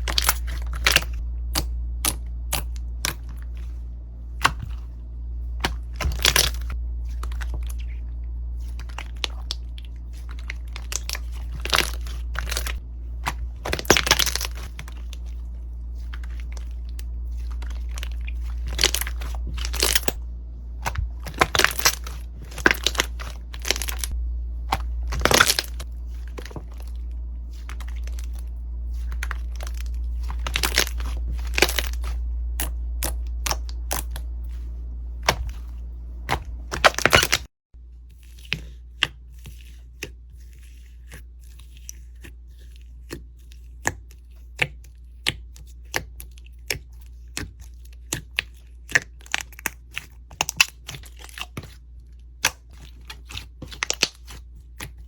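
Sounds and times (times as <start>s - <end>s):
low hum: 0.0s - 39.3s
slime crackling and popping: 8.7s - 15.2s, 16.1s - 20.2s, 20.8s - 27.0s, 29.0s - 34.3s, 36.3s - 37.5s, 43.7s - 55.0s.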